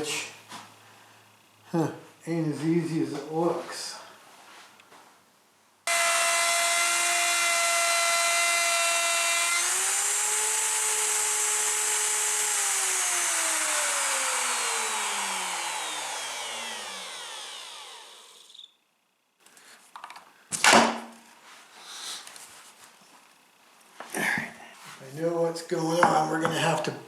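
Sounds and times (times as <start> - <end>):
electric router whining: 5.9 - 18.7.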